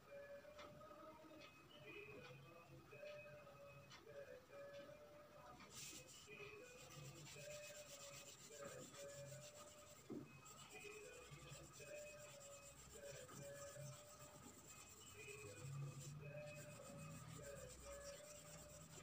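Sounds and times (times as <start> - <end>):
soft background music: 0.0 - 19.0
drawing tool scratching on paper: 5.7 - 19.0.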